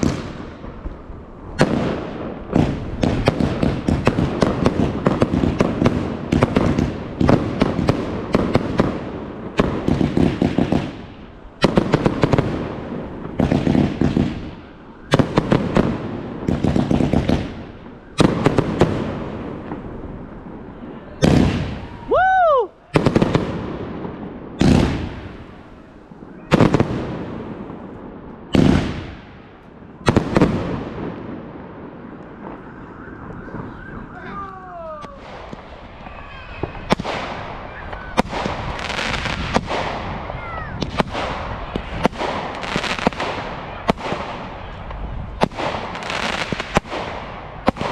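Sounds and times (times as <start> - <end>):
fireworks bangs and crackling: 0.0 - 47.9
firework whistle: 32.2 - 44.9.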